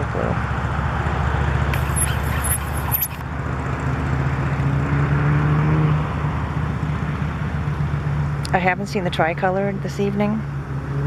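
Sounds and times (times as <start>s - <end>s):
road traffic rumble: 1.7s - 3.2s.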